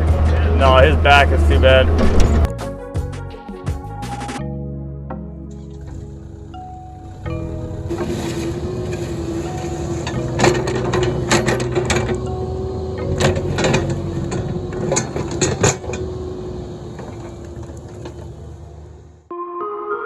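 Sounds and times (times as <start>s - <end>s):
diesel engine running: 0.0s - 2.5s, 5.5s - 19.3s
metal clanks and knocks: 5.7s - 19.2s.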